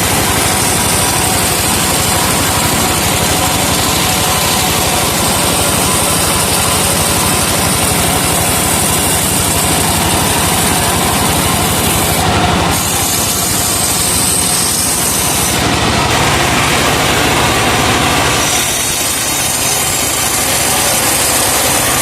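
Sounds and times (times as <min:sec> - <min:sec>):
saw blade whining through wood: 0:00.0 - 0:22.0
truck engine running steadily: 0:00.0 - 0:22.0.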